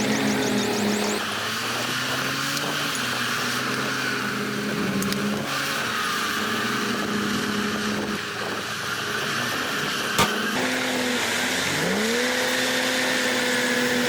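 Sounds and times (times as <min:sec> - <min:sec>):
heavy diesel engine running: 0:00.0 - 0:01.9.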